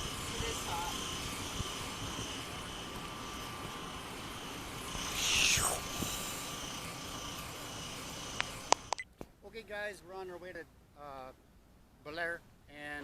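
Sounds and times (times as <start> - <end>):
outdoor background noise: 0.0 - 13.0
sharp clicks: 8.3 - 9.1.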